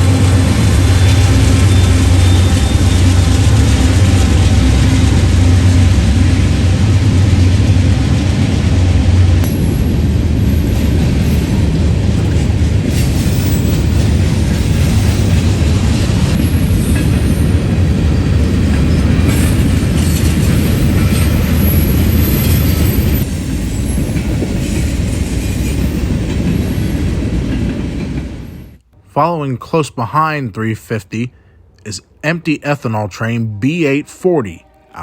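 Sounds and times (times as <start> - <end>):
freight train rumbling past: 0.0 - 29.0
wheel squeal: 0.8 - 3.6
wheels clacking over rail joints: 9.4 - 28.4.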